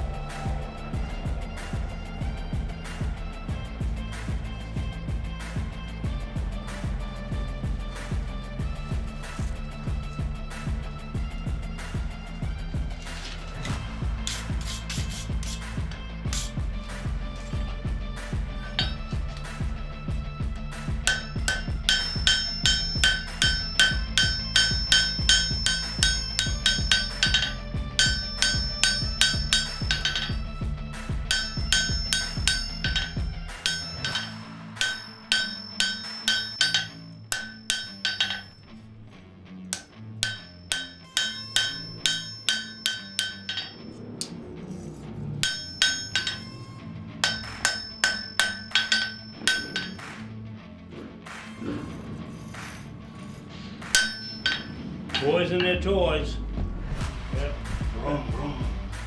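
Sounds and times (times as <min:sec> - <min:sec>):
steady low hum: 0:00.0 - 0:39.2
hammer striking anvil: 0:13.1 - 0:38.8, 0:39.7 - 0:50.2, 0:51.3 - 0:55.9.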